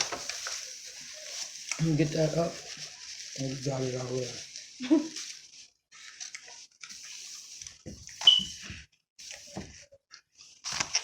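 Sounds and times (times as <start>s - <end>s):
brief squeak: 8.2s - 8.6s.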